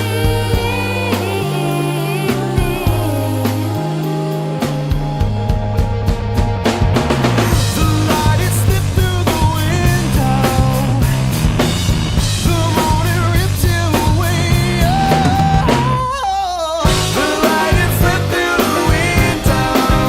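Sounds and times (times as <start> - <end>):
rock song with drums and bass: 0.0 - 16.1, 16.8 - 20.0.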